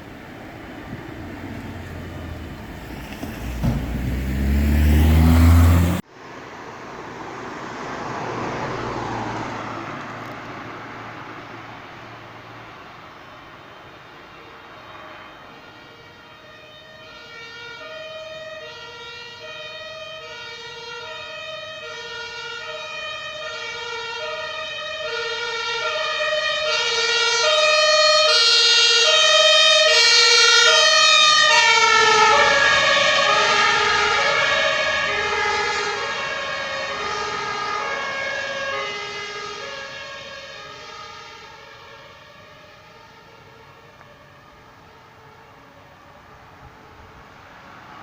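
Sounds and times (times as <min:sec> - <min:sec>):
two-tone fire engine siren: 0:00.0 - 0:06.0, 0:13.7 - 0:48.0
truck rumble: 0:00.0 - 0:13.0, 0:29.2 - 0:38.7.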